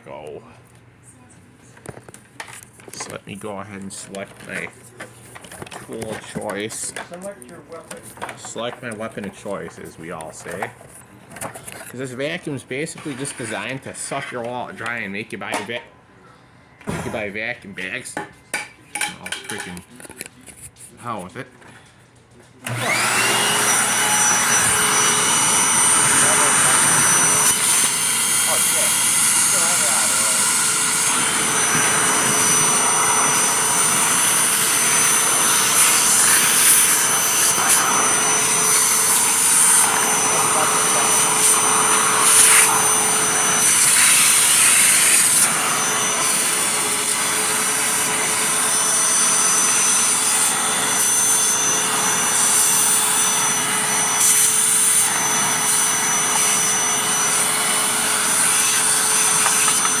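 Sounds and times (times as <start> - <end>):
vacuum cleaner whining: 5.4 - 10.8, 11.4 - 15.7, 22.6 - 60.0
vacuum sucking up tobacco: 22.7 - 60.0.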